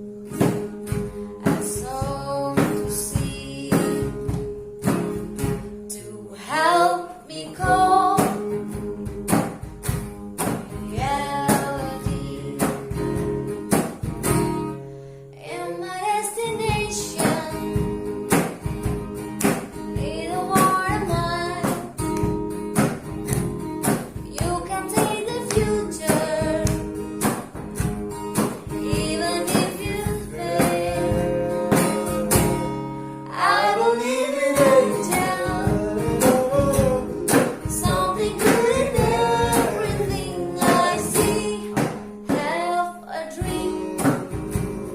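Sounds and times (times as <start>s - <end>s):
acoustic guitar strumming: 0.0s - 44.9s
woman singing a pop song: 0.3s - 4.6s, 5.7s - 9.4s, 10.4s - 13.6s, 15.3s - 18.4s, 19.8s - 22.4s, 24.2s - 27.2s, 28.6s - 32.5s, 33.2s - 44.5s.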